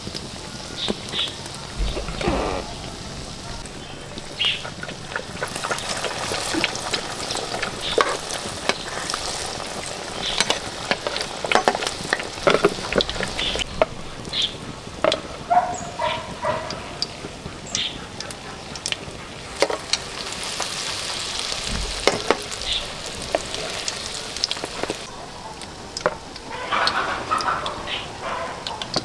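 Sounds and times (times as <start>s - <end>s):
food sizzling in a pan: 0.0s - 29.0s
sharp clicks and knocks: 1.8s - 5.2s.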